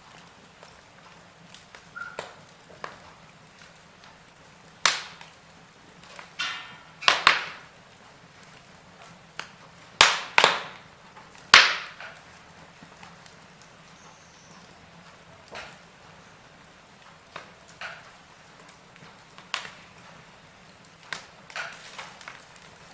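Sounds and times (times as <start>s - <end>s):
wood fire crackling: 0.0s - 22.9s
sharp fire pops: 0.2s - 16.3s, 17.0s - 22.9s.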